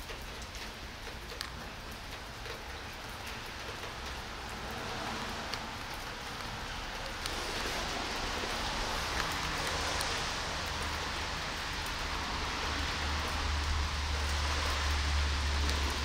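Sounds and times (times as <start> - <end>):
rain on wet asphalt: 0.0 - 16.0.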